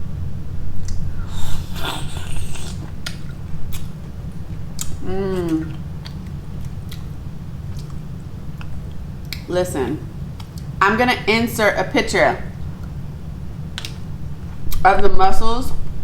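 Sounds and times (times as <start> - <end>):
steady low hum: 0.0 - 16.0
person chewing: 0.8 - 5.0
person humming mm: 1.2 - 2.9
slurping: 1.2 - 3.9.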